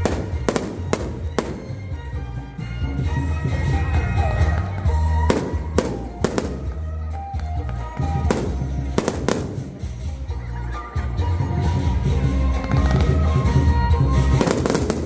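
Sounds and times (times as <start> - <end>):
firework shells bursting: 0.0 - 2.0, 5.3 - 6.8, 8.1 - 10.0, 14.4 - 15.0
music with heavy bass: 0.0 - 15.0.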